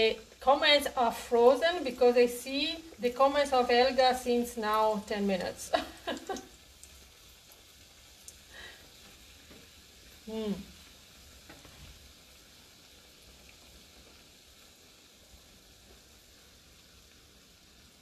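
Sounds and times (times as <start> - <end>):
dough sizzling in oil: 0.0 - 18.0
woman humming: 10.2 - 10.8.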